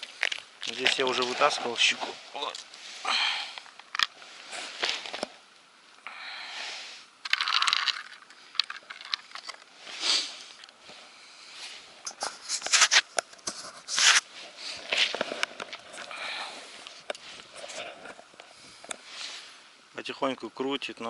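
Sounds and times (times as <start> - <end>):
crunching and scraping: 0.0 - 5.4, 7.2 - 19.6
crackling bursts: 7.2 - 11.0, 12.0 - 19.6.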